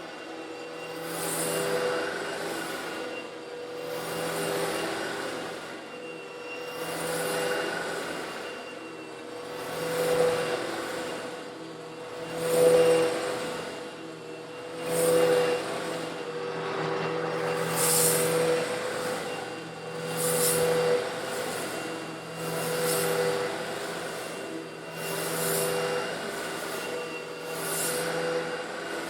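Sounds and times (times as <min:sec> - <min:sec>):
vacuum cleaner humming: 0:00.0 - 0:29.0
stone granules sucked in: 0:17.5 - 0:18.4.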